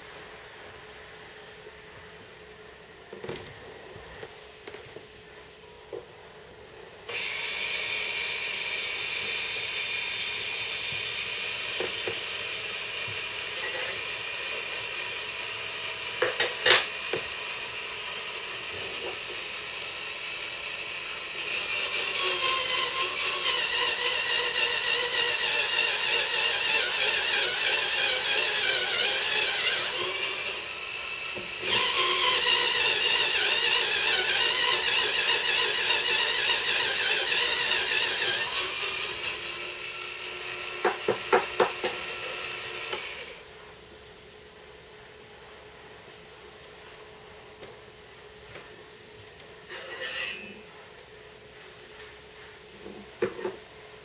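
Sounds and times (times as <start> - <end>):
electric drill motor whining: 7.1 - 43.4.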